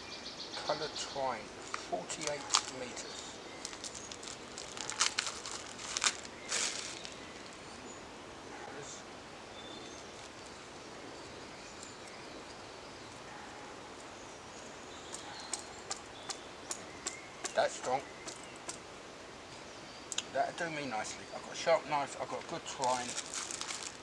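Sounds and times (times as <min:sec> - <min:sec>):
outdoor background hiss: 0:00.0 - 0:24.0
twine crinkling and rustling: 0:01.6 - 0:07.7, 0:22.1 - 0:24.0.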